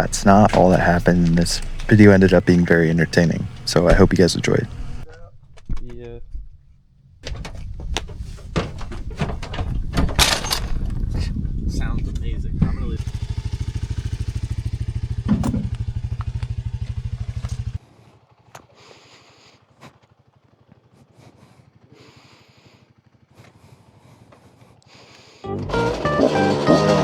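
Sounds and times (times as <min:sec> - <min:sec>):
dirt bike engine idling: 0:00.0 - 0:05.2, 0:10.7 - 0:27.0
music: 0:25.4 - 0:27.0.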